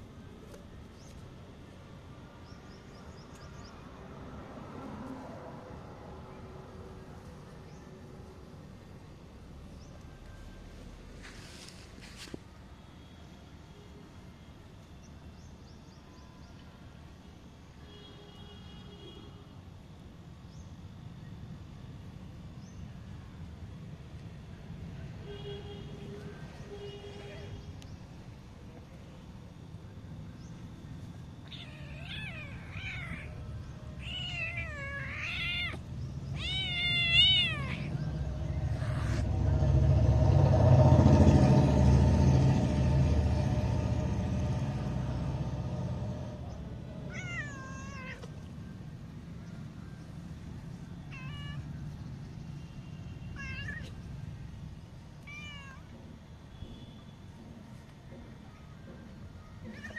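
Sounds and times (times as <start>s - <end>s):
cat meowing: 31.4s - 33.4s, 34.0s - 38.0s, 47.1s - 48.3s, 51.1s - 51.6s, 53.4s - 54.0s, 55.2s - 55.9s, 59.6s - 59.9s
loud low rumble: 37.9s - 47.1s.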